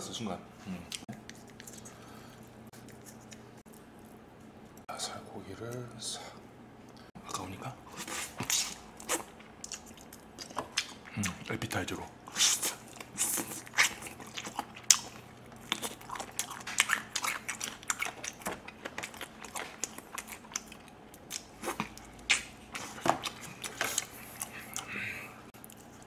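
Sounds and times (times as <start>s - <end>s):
person chewing meat: 7.9s - 26.0s.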